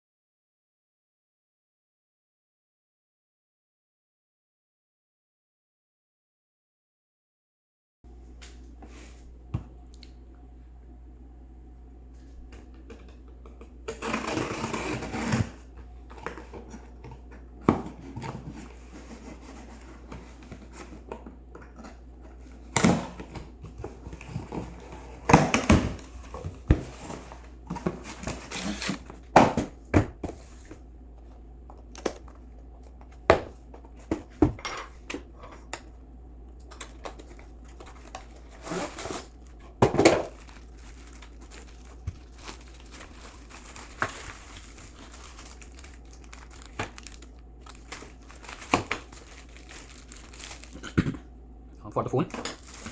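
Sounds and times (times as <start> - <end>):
packaging rustling: 13.9 - 35.9, 36.6 - 51.0, 52.2 - 52.9.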